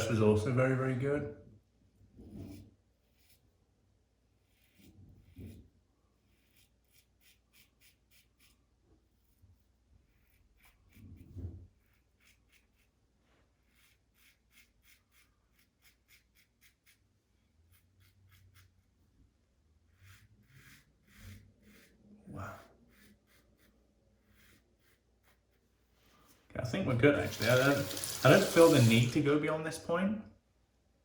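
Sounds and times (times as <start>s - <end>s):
razor scratching stubble: 2.4s - 3.5s, 4.4s - 8.6s, 10.0s - 19.0s, 19.9s - 25.6s, 27.2s - 29.2s.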